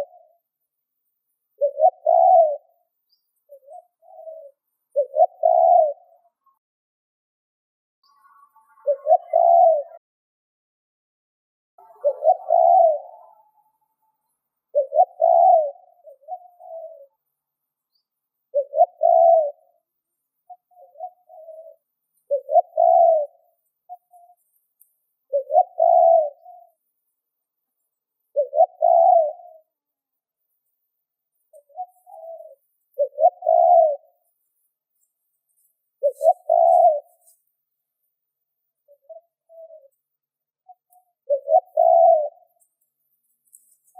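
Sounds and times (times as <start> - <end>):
dove cooing: 0.0 - 0.4, 1.6 - 2.8, 3.5 - 6.3, 8.7 - 10.0, 11.8 - 17.2, 18.5 - 19.8, 20.5 - 24.6, 25.3 - 26.8, 28.3 - 29.7, 31.5 - 34.3, 36.0 - 37.4, 38.9 - 40.0, 40.7 - 42.6.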